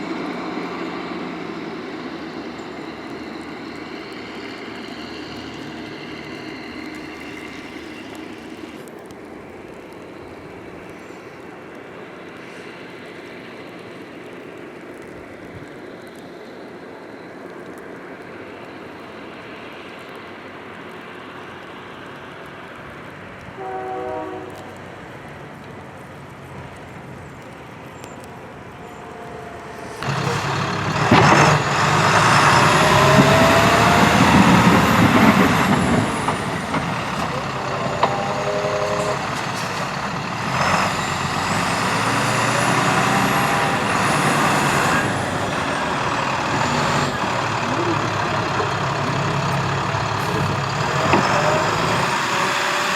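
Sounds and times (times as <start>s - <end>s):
highway traffic rushing: 0.0s - 14.4s, 20.5s - 52.9s
heavy truck passing close: 0.0s - 52.9s
short pitched tone: 37.2s - 39.6s.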